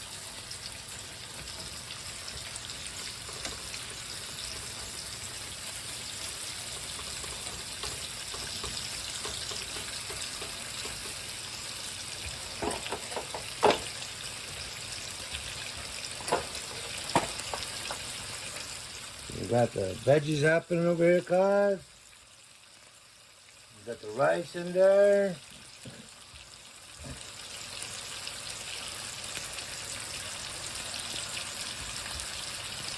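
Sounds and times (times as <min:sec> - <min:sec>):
bacon and egg sizzling in pan: 0:00.0 - 0:32.9.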